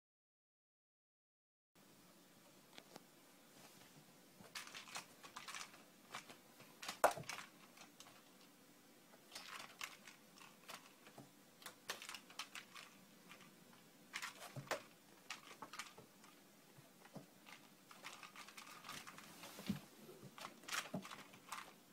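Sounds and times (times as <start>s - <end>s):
cat's paws scratching and tapping: 4.4s - 8.3s, 14.1s - 21.8s.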